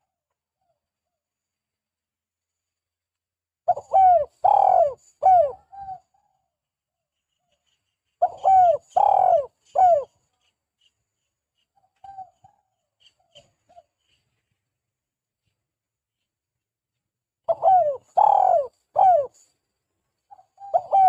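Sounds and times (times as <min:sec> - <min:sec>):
dove cooing: 0:03.7 - 0:06.3, 0:08.2 - 0:10.2, 0:17.5 - 0:19.4, 0:20.3 - 0:21.0.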